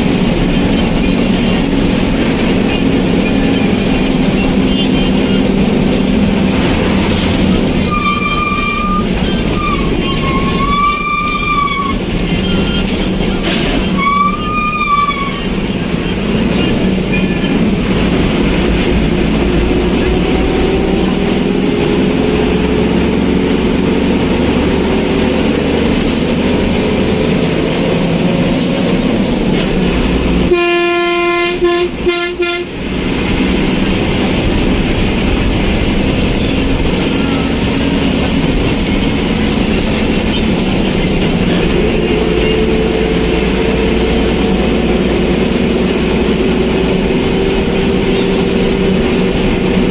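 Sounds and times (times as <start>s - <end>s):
road vehicle running: 0.0s - 49.9s
horn honking: 0.1s - 49.9s.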